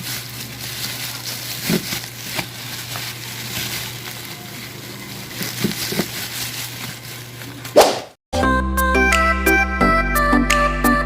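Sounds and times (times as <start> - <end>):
crackling noise: 0.0 - 8.2.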